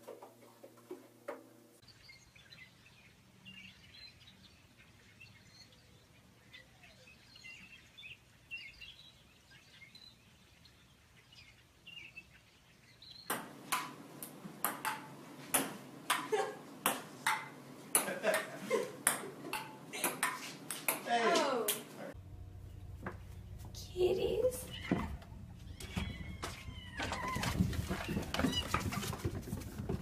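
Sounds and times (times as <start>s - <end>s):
birds chirping faintly: 1.1s - 15.3s, 17.4s - 29.1s
ping-pong ball clicking: 13.3s - 21.0s.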